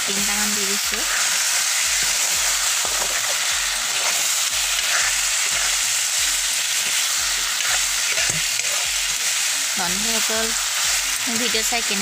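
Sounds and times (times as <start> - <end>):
food frying sizzle: 0.0 - 12.0
metal spatula scraping: 1.0 - 9.5.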